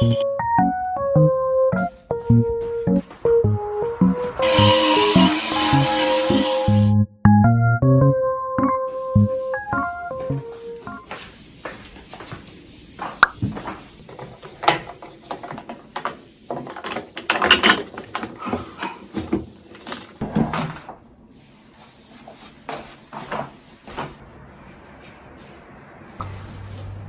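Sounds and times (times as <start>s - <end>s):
household objects knocking and rubbing: 13.2s - 20.4s.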